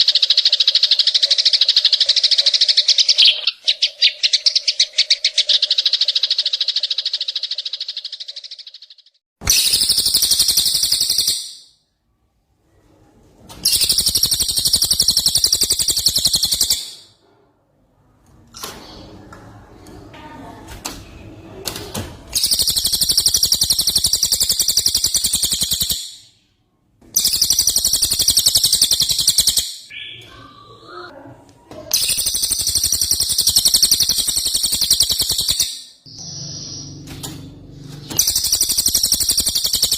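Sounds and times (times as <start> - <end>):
bird singing rapid trills: 0.0 - 11.7, 13.7 - 17.0, 22.4 - 26.3, 27.2 - 30.7, 32.0 - 37.1, 38.1 - 39.9
soft bird calls: 27.2 - 31.1.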